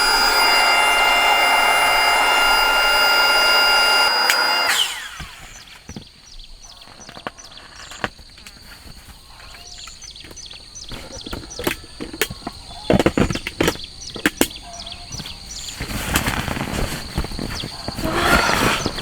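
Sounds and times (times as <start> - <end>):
small electric motor whining: 0.0 - 5.9, 17.9 - 19.0.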